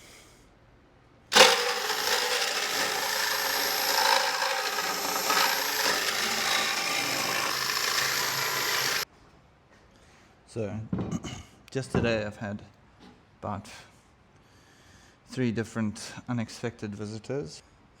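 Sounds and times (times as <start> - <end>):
power tool cutting wood: 1.3 - 9.0.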